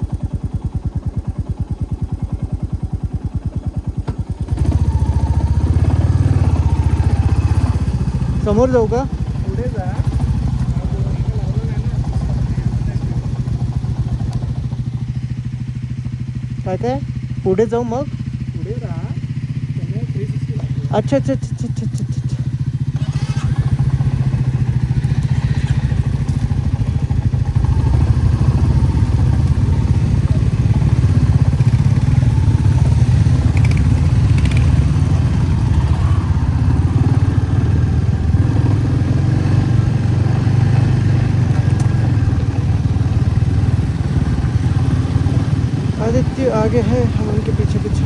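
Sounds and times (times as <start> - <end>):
motorcycle engine throbbing: 0.0 - 48.0.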